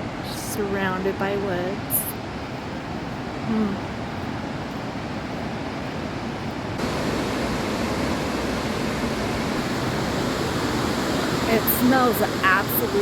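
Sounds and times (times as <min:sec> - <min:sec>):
waterfall rushing: 0:06.8 - 0:13.0.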